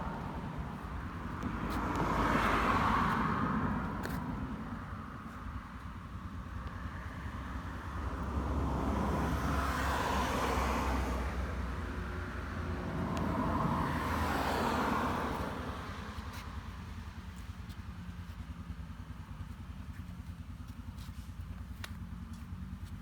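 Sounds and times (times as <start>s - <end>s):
motorcycle engine idling: 16.5s - 23.0s.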